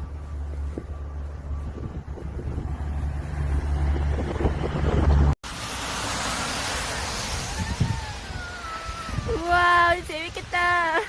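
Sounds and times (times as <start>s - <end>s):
wind buffeting microphone: 0.5s - 5.4s, 7.3s - 10.1s
hiss of wind-driven snow: 5.5s - 10.3s.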